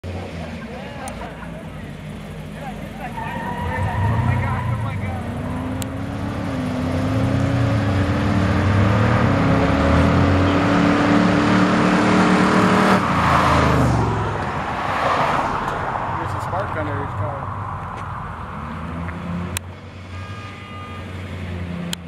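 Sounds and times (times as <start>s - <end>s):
car engine running: 0.1s - 14.9s.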